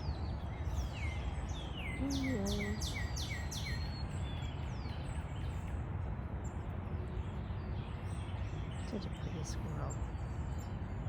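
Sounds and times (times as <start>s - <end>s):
wild birds chirping: 0.0s - 5.6s.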